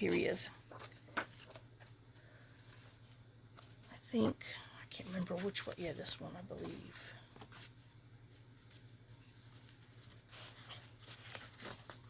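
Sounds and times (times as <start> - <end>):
paper rustling: 0.0 - 3.8, 5.0 - 12.0
low steady hum: 0.0 - 12.0.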